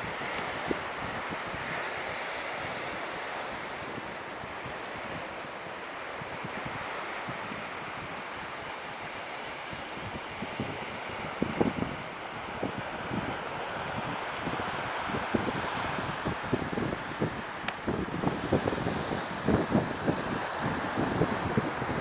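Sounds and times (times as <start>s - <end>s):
surf breaking on beach: 0.0s - 22.0s
wind buffeting microphone: 9.7s - 22.0s.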